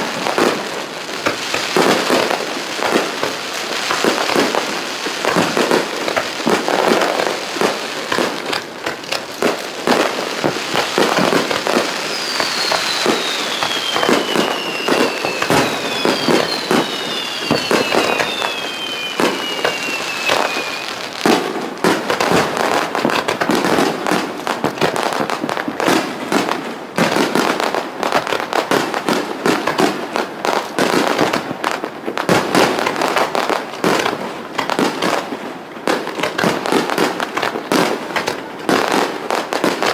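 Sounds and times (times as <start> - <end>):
fireworks bursts and crackle: 0.0 - 39.9
falling firework whistles: 9.4 - 22.5.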